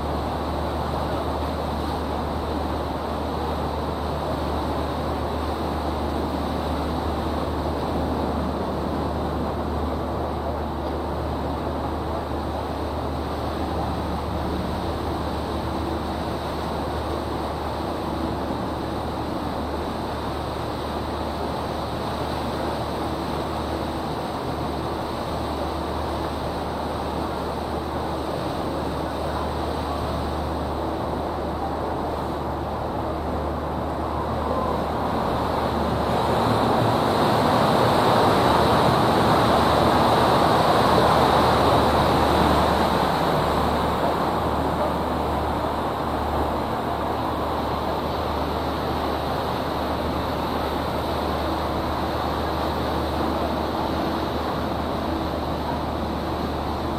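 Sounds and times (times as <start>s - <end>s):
low boat engine hum: 0.0s - 56.9s
rushing water: 0.0s - 56.9s.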